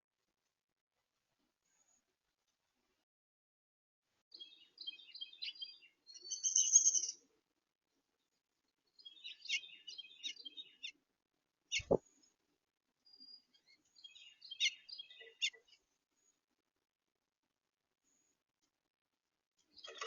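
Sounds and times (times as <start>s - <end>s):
songbirds chirping: 4.3s - 7.4s, 8.0s - 16.6s, 19.6s - 20.0s.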